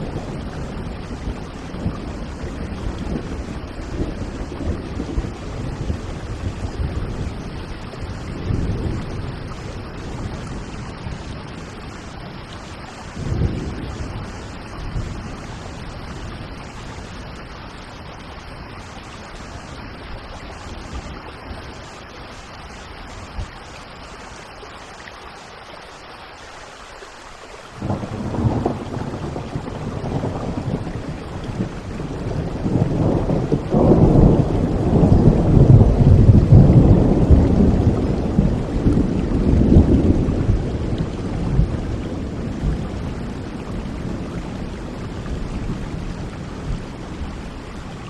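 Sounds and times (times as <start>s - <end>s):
rolling thunder: 0.0s - 17.2s, 27.8s - 48.0s
steady rain: 0.0s - 48.0s.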